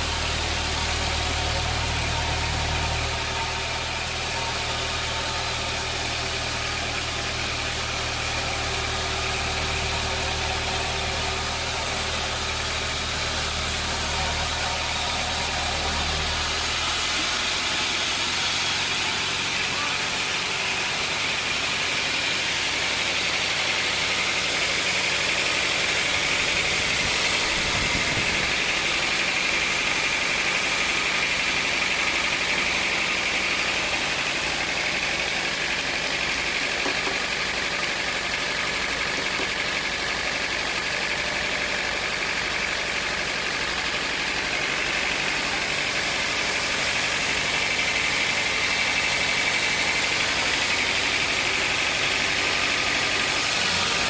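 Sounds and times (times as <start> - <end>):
sawmill machinery drone: 0.0 - 54.0.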